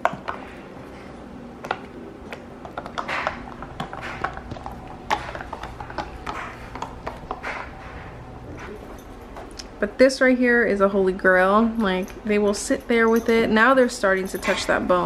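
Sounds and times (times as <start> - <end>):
puppies gnawing on a bone: 0.0 - 9.8.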